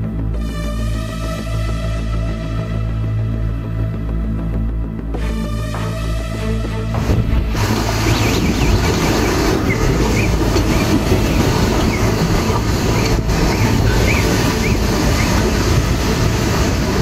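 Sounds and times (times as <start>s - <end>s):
storm wind and rain roaring: 7.0s - 17.0s
wind buffeting microphone: 7.1s - 17.0s.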